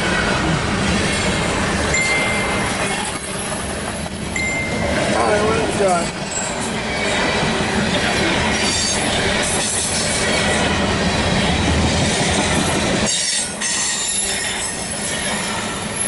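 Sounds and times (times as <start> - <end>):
train wheels rumbling on rails: 0.0 - 16.0
high wheel squeal: 12.5 - 16.0.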